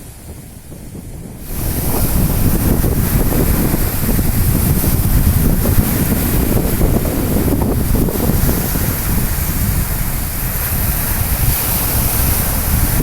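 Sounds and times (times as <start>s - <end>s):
stormy sea surf: 0.0s - 13.0s
wind buffeting microphone: 0.0s - 13.0s.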